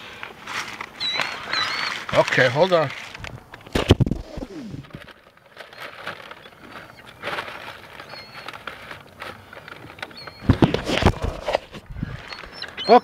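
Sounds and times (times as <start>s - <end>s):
paper wrapper rustling: 0.0s - 12.6s
seagull cries: 1.0s - 2.1s.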